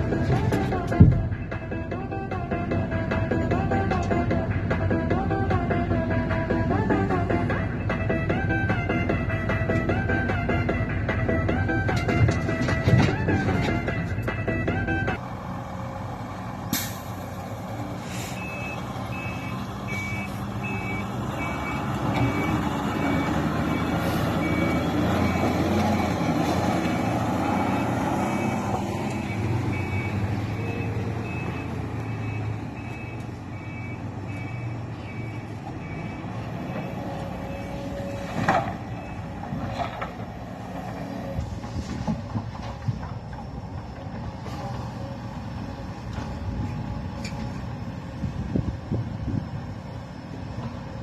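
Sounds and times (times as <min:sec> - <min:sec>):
diesel truck engine running: 0:00.0 - 0:51.0
reversing alarm beeping: 0:18.3 - 0:38.3, 0:38.9 - 0:39.4.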